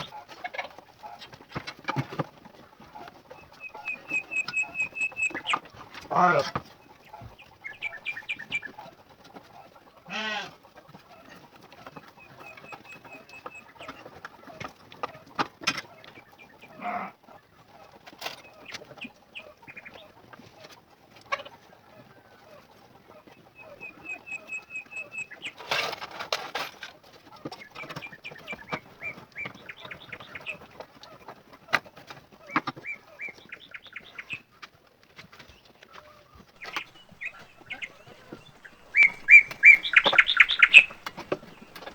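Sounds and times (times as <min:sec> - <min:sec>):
chickens clucking: 0:00.0 - 0:41.9
birds chirping: 0:03.0 - 0:09.0, 0:12.0 - 0:14.1, 0:18.4 - 0:20.1, 0:23.3 - 0:25.6, 0:27.6 - 0:30.6, 0:36.6 - 0:41.9.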